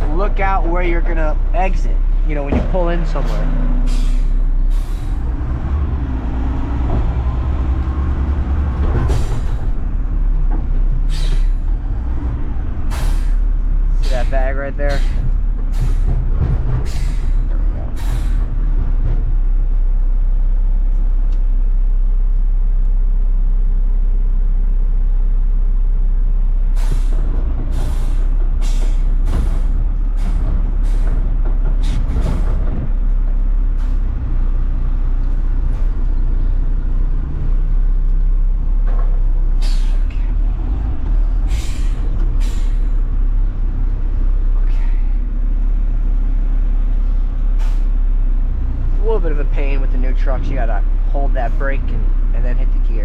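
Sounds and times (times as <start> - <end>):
garbage truck engine running: 0.0 - 53.0
short sharp air hisses: 3.9 - 5.1, 11.1 - 11.6, 26.8 - 27.2, 39.6 - 40.1, 47.6 - 47.9.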